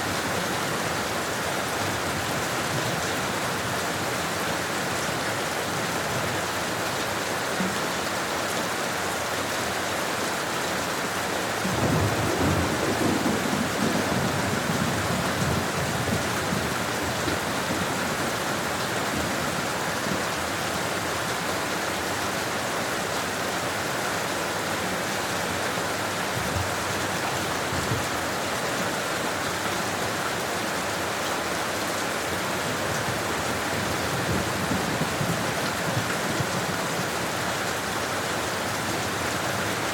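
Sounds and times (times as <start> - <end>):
steady rain falling: 0.0 - 39.9
low rumble of thunder: 11.7 - 18.0, 33.7 - 36.9.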